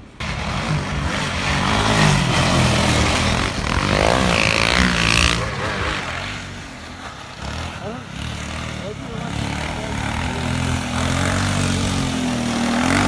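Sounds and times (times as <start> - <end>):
snowmobile engine passing: 0.0 - 13.0.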